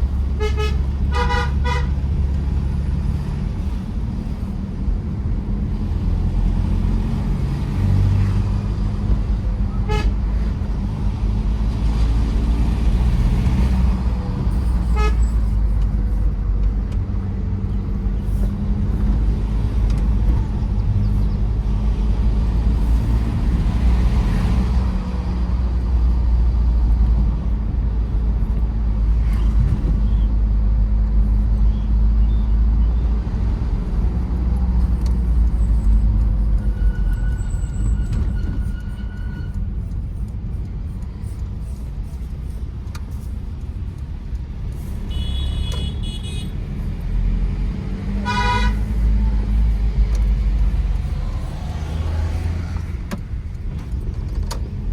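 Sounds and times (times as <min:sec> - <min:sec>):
engine and road rumble: 0:00.0 - 0:54.9
vehicle horns honking: 0:00.3 - 0:02.0, 0:09.7 - 0:10.3, 0:14.8 - 0:15.7, 0:45.0 - 0:46.6, 0:48.2 - 0:49.0.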